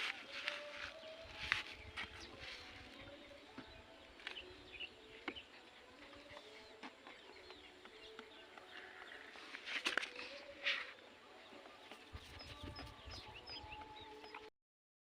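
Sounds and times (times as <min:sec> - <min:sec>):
distant bird calls: 0:00.0 - 0:14.5.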